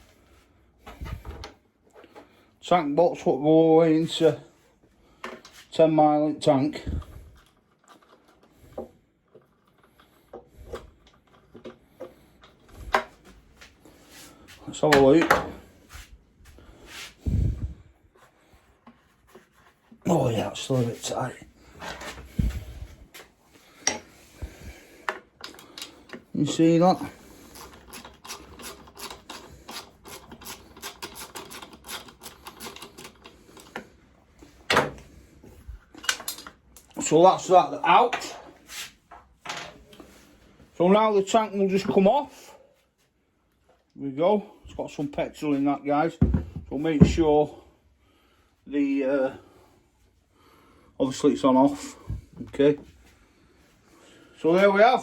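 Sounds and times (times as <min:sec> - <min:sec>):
hand tools clicking and tapping: 0:25.0 - 0:26.3, 0:27.6 - 0:33.9
metal parts being handled: 0:35.8 - 0:37.0.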